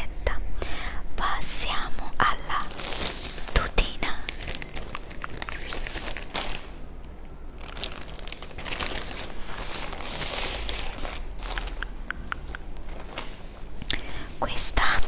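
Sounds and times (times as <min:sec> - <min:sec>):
packaging crinkling and rustling: 0:02.5 - 0:11.8, 0:12.4 - 0:15.0.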